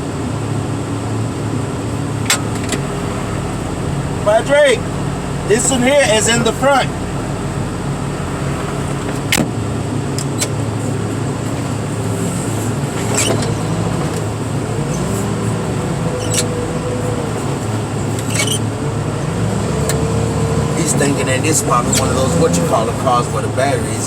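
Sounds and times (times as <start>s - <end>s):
heavy equipment engine running: 0.0s - 24.0s
whining tone: 10.2s - 24.0s.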